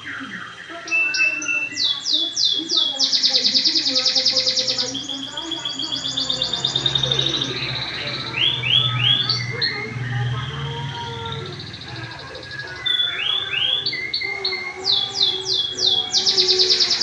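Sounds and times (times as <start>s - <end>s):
canary singing trills: 0.0s - 17.0s.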